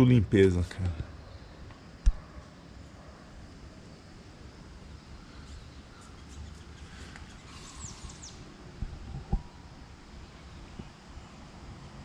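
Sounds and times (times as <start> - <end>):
high falling bird chirps: 5.1 - 8.5.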